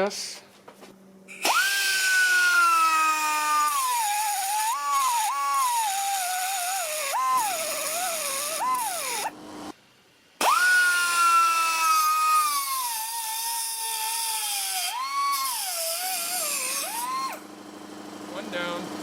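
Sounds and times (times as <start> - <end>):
cut-off tool cutting steel: 1.3 - 9.3, 10.4 - 17.4.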